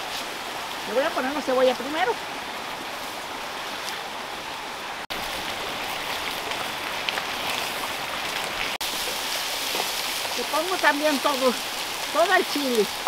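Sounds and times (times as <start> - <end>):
food sizzling in hot oil: 5.1 - 13.0.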